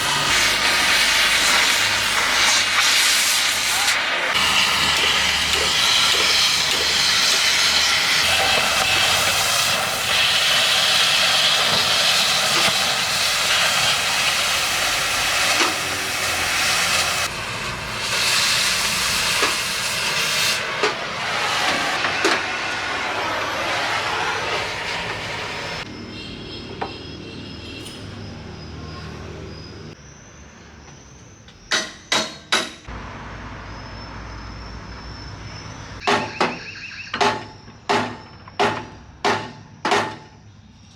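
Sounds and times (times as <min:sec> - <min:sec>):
cutting torch flame hissing: 0:00.0 - 0:25.9.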